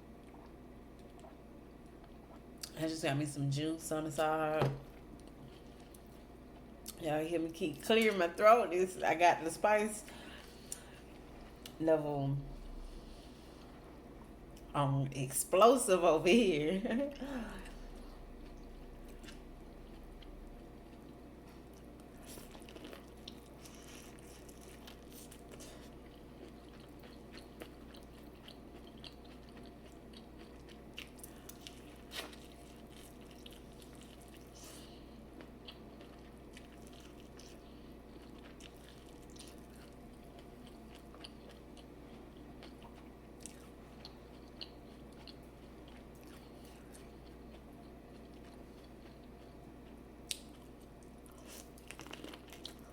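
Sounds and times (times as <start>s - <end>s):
steady low hum: 0.0s - 52.9s
person chewing and biting: 18.2s - 52.9s.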